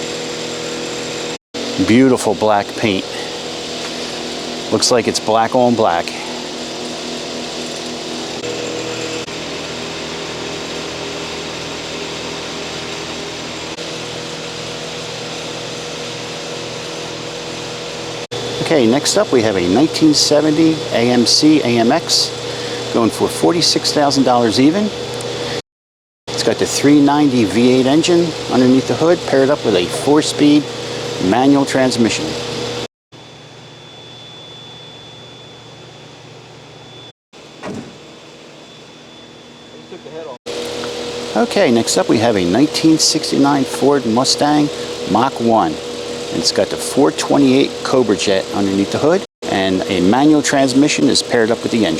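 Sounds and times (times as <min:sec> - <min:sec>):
background hum: 0:00.0 - 0:25.6
high-pitched whine: 0:18.0 - 0:25.0, 0:33.2 - 0:37.1, 0:37.7 - 0:51.9.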